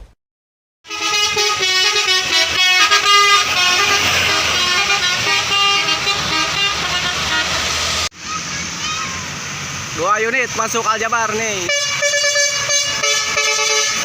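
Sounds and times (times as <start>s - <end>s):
multi-tone bus horn melody: 0.8s - 8.1s, 11.6s - 14.0s.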